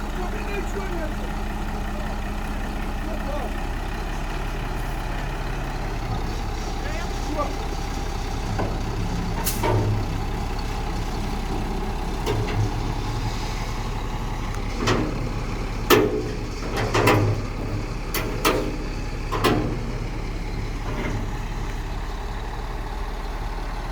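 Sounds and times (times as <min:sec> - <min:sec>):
heavy vehicle engine idling: 0:00.0 - 0:23.9
sharp metallic knocks: 0:14.7 - 0:19.9.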